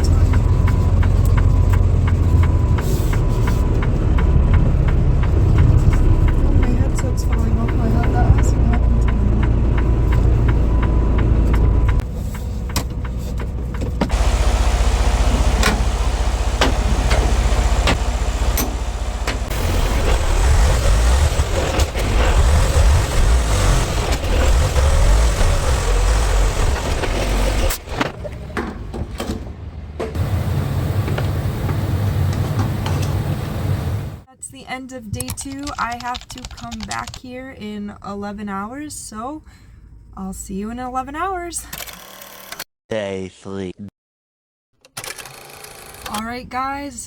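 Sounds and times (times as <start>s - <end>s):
road noise: 0.0s - 34.3s
truck engine rumble: 0.0s - 41.5s.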